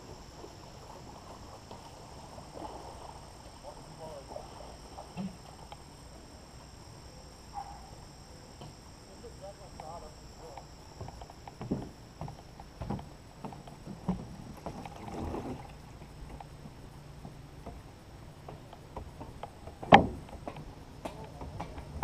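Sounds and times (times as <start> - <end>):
paddles knocking canoe hull: 9.7 - 16.4.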